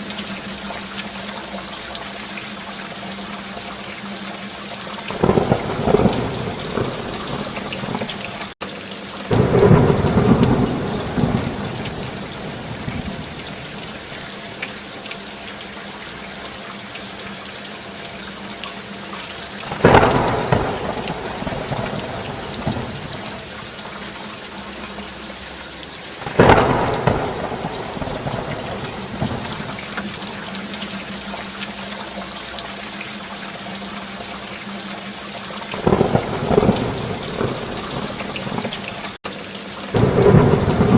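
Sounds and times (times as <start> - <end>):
steady rain: 0.0 - 40.9
sharp thunder claps: 5.1 - 8.6, 9.3 - 14.1, 19.7 - 23.6, 26.2 - 30.4, 35.8 - 39.1, 40.0 - 40.9
thunder rumbling: 5.1 - 8.6, 9.3 - 14.2, 19.7 - 23.8, 26.2 - 30.6, 35.8 - 39.2, 40.0 - 40.9.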